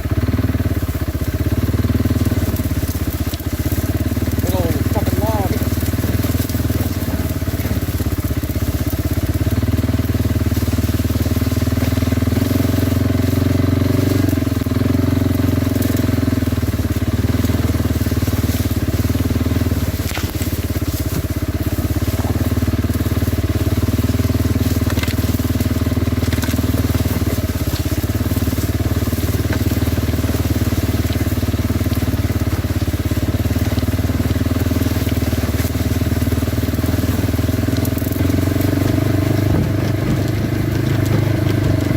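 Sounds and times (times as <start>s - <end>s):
atv engine running: 0.0s - 41.9s
clicks and knocks from rough ground: 0.0s - 41.9s
tyre noise: 2.3s - 41.9s.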